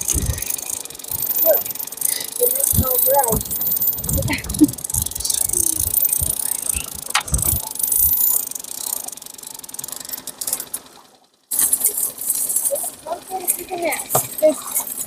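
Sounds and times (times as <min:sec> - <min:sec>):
wind buffeting microphone: 0:00.0 - 0:00.5, 0:02.6 - 0:07.7
fishing reel ratcheting: 0:00.0 - 0:10.8.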